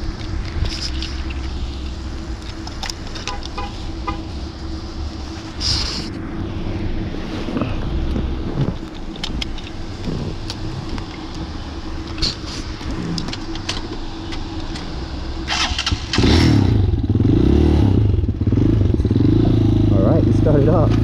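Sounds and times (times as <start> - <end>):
motorcycle engine revving: 6.8 - 21.0
engine cranking: 8.6 - 16.9.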